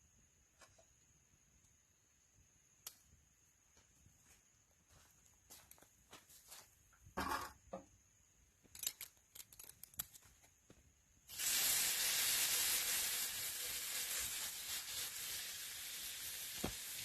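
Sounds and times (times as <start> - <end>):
food sizzling in hot pan: 11.3 - 17.0.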